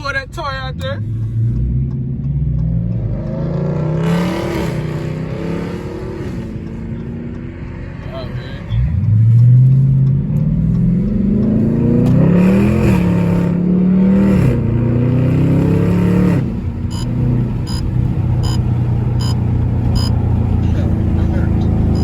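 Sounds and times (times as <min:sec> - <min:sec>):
car engine accelerating: 0:00.0 - 0:22.0
even ticking: 0:00.4 - 0:03.5, 0:16.9 - 0:20.2, 0:21.7 - 0:22.0.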